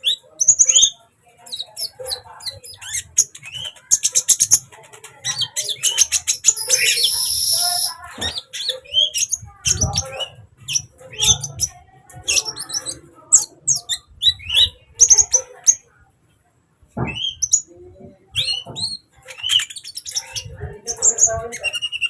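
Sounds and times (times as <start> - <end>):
bird singing high chirps: 6.5 - 8.0.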